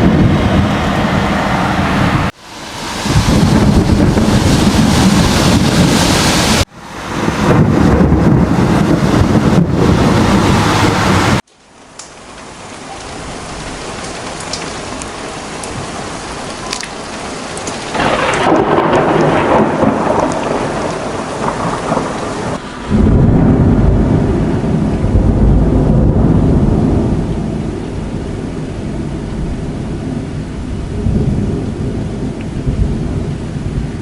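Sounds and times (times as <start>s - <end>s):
deep thunder rumble: 0.0s - 2.4s, 3.0s - 11.4s, 17.8s - 34.0s
heavy rain falling: 0.0s - 34.0s.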